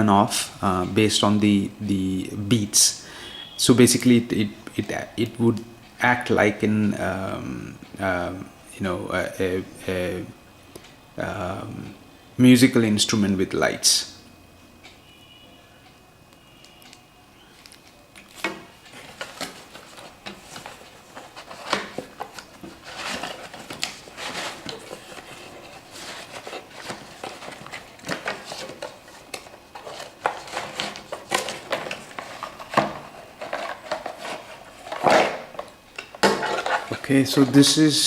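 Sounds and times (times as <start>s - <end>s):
packaging crinkling: 17.6s - 37.6s.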